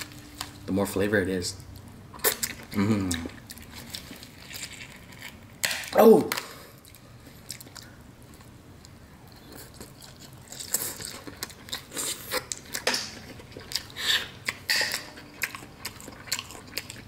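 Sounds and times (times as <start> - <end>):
wet chewing and sucking: 2.1 - 5.4, 6.7 - 17.0.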